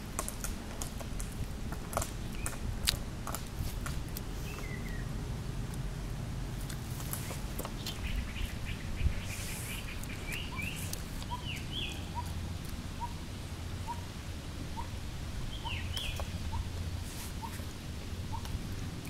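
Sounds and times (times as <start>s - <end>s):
bird sweeping chirps: 7.9s - 12.3s, 15.5s - 16.7s.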